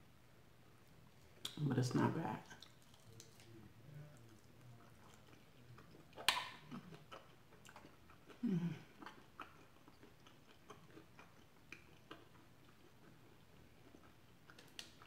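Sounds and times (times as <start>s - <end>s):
chewing clicks and mouth sounds: 2.4s - 15.0s
bite crunch: 2.5s - 3.5s, 4.2s - 15.0s.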